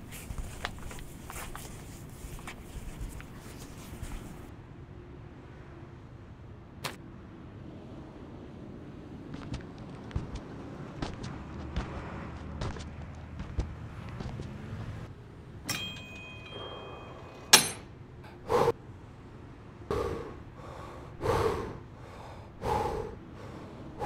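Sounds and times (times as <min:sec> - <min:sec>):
metal weights clinking: 0:15.7 - 0:17.9
man breathing out hard: 0:19.9 - 0:24.0.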